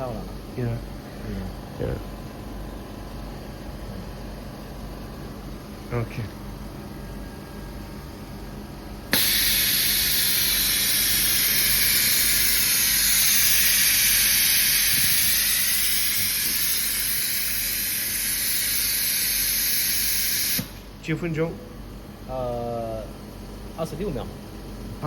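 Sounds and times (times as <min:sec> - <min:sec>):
machine air hiss: 0:09.1 - 0:21.2.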